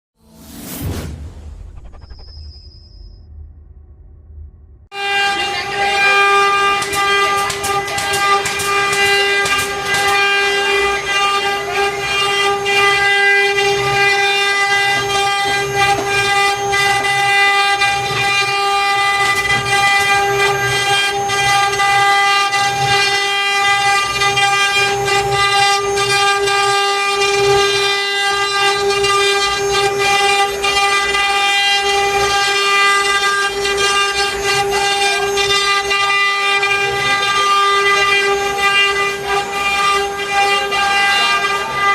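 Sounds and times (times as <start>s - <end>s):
rough low noise: 0.2s - 5.0s
router spindle high-pitched whine: 5.0s - 41.9s.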